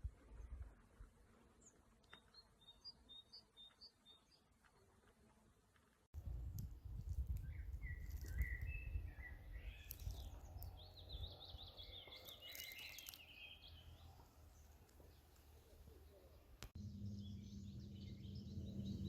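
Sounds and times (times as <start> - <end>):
songbirds chirping and trilling: 1.5 - 4.9, 6.5 - 19.0
low rumble: 16.8 - 19.0.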